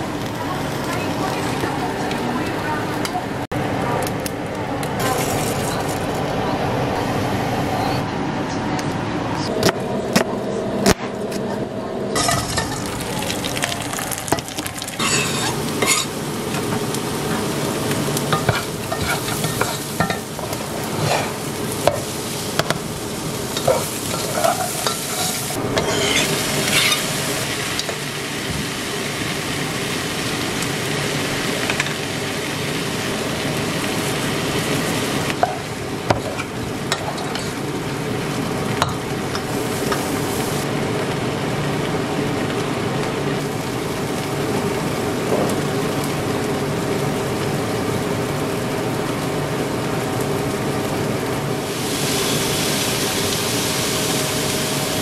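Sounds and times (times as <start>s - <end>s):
chicken sizzling in a pot: 12.2s - 55.0s.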